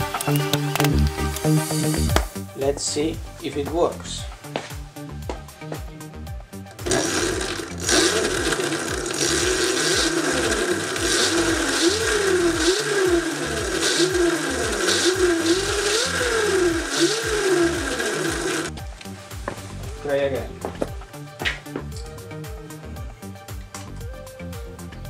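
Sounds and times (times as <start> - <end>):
electric motor whine: 6.8 - 18.8
chain spinning: 6.9 - 18.7.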